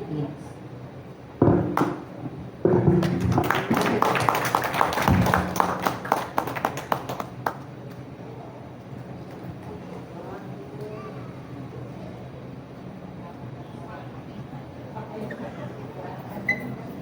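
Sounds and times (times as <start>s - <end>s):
low thumps: 1.4s - 3.5s
small audience clapping: 3.0s - 8.0s.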